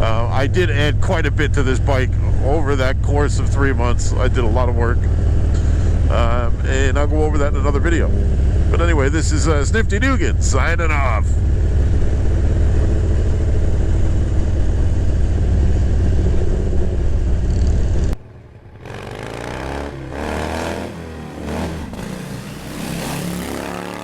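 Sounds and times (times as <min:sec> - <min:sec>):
motorcycle engine running: 0:00.0 - 0:24.0
motorcycle engines revving: 0:00.0 - 0:24.0
wind rushing over microphone: 0:04.5 - 0:18.2.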